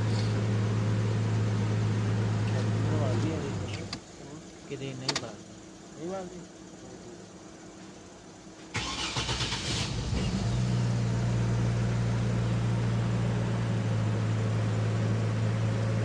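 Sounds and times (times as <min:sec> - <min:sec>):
car engine idling: 0:00.0 - 0:16.0
car engine starter cranking: 0:08.7 - 0:10.4.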